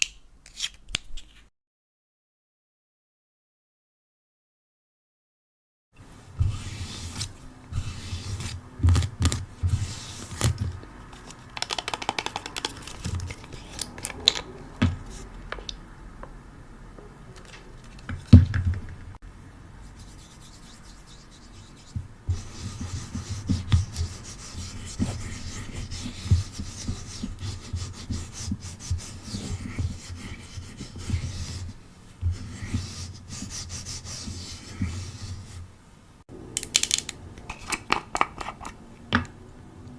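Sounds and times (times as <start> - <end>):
rubbing and scratching objects: 6.3 - 15.4, 19.8 - 35.7, 37.5 - 38.8.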